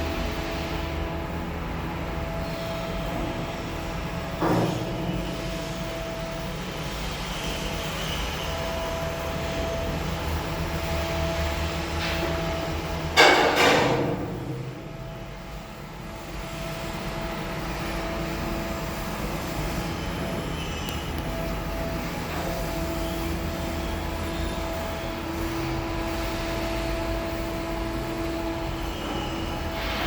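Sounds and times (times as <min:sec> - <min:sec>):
mechanical drone humming: 0:14.1 - 0:30.0.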